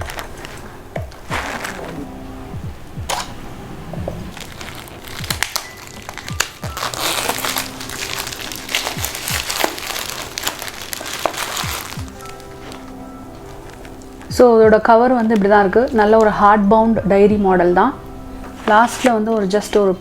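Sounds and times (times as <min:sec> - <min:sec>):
packaging crinkling: 0:00.0 - 0:02.1, 0:04.3 - 0:14.3
background music: 0:00.0 - 0:20.0.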